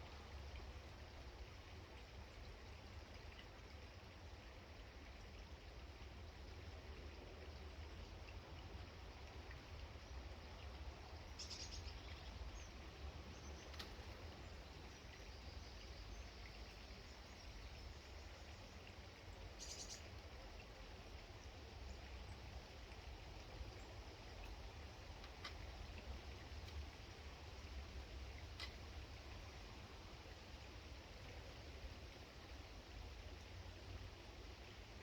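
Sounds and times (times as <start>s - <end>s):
small birds chirping: 11.2s - 20.1s.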